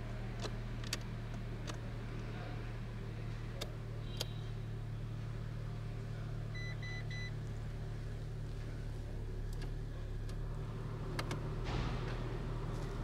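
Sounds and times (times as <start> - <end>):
car engine idling: 0.0 - 13.0
short electronic beeps: 6.6 - 7.3.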